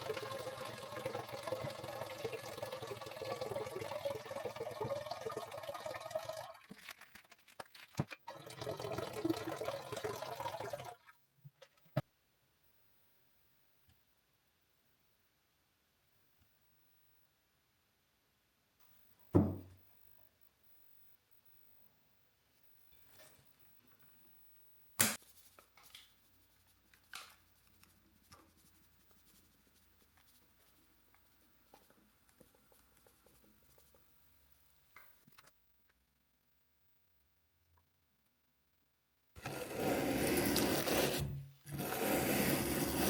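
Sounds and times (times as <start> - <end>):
sharp knock: 25.0 - 25.2.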